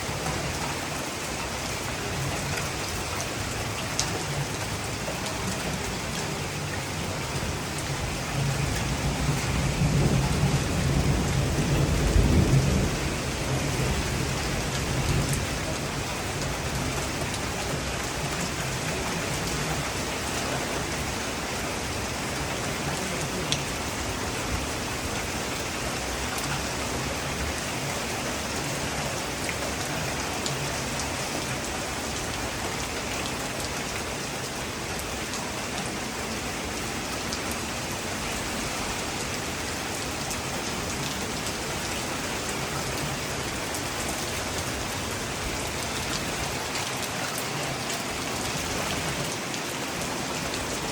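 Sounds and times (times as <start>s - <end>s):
steady rain falling: 0.0s - 50.9s
low thunder rumble: 8.4s - 15.4s.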